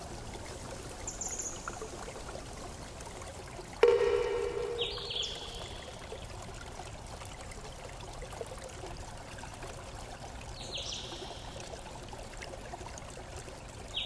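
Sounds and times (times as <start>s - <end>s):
stream water flowing: 0.0s - 14.0s
bird chirp: 3.8s - 6.0s
struck ringing tone: 3.8s - 6.0s.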